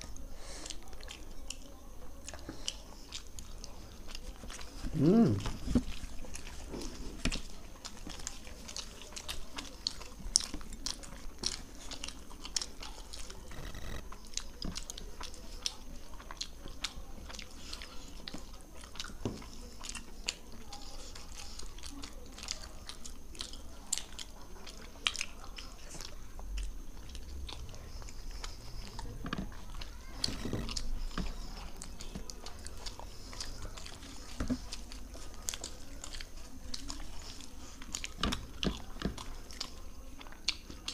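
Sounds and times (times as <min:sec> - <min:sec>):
people chewing food: 0:00.0 - 0:40.9.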